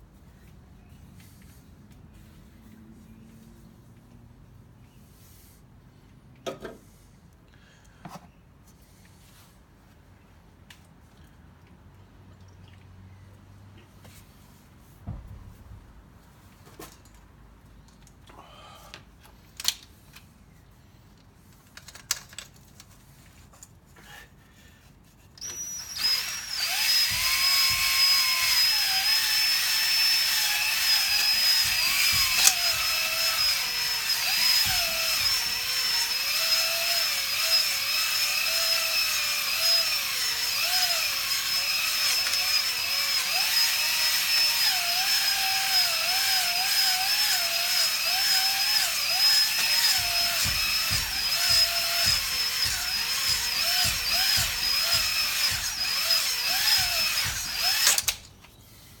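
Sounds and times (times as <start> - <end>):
electric drill whining: 25.4 - 58.2.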